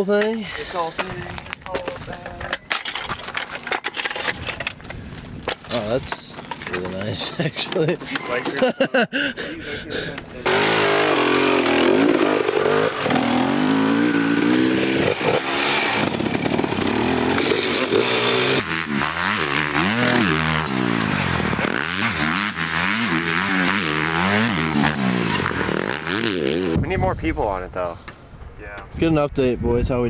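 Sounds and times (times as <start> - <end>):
dirt bike engine revving: 10.4 - 26.8.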